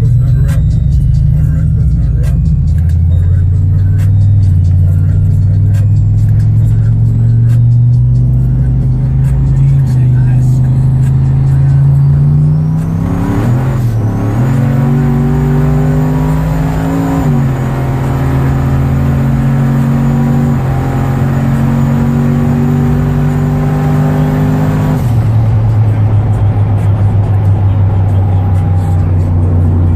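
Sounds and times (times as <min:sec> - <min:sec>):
engine accelerating hard: 0:00.0 - 0:29.9.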